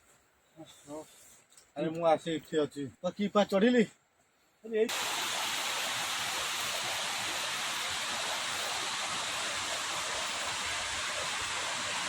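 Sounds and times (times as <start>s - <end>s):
waterfall rushing: 4.9s - 12.0s.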